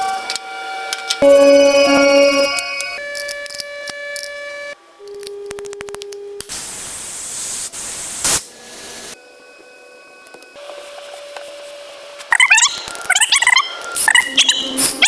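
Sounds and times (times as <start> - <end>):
machine hum: 0.0 - 5.6
steady tone: 1.2 - 3.3.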